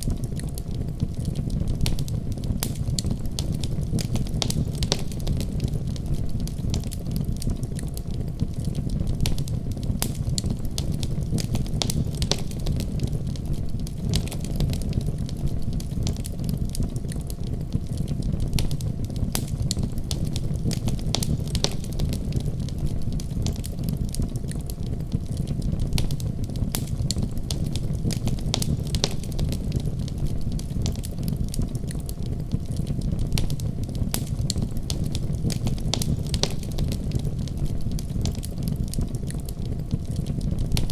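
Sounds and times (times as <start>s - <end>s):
fire crackling and popping: 0.0s - 40.9s
wood fire rumbling: 0.0s - 40.9s.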